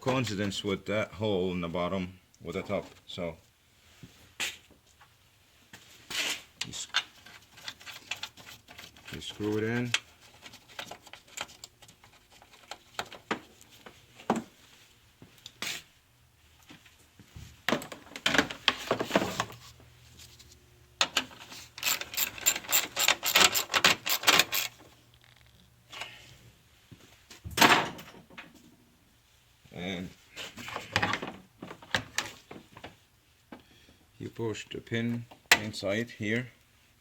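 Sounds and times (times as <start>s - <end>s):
parts rattling: 21.0s - 25.6s
hand ratchet clicking: 21.8s - 24.8s.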